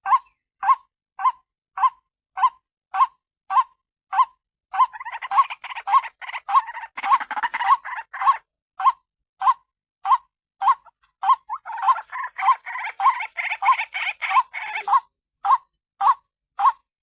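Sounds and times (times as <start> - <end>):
bird harsh repeated call: 4.9 - 8.4, 10.8 - 16.8.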